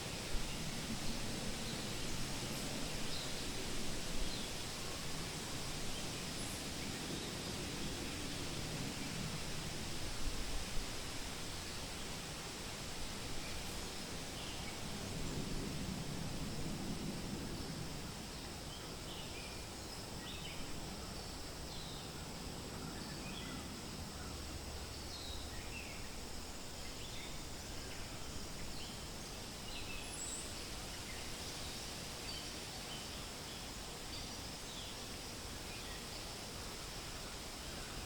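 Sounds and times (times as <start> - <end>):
wind rustling through leaves: 0.0 - 38.0.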